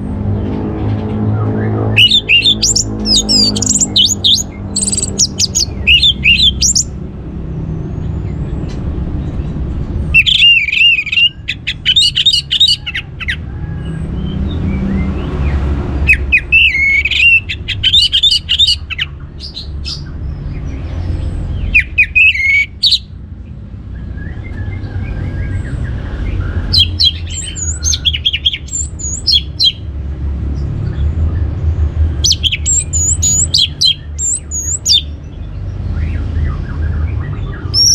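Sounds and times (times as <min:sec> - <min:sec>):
thrush singing: 0:01.4 - 0:07.0, 0:10.2 - 0:13.5, 0:14.4 - 0:20.0, 0:21.7 - 0:23.1, 0:26.5 - 0:29.9, 0:32.2 - 0:35.2.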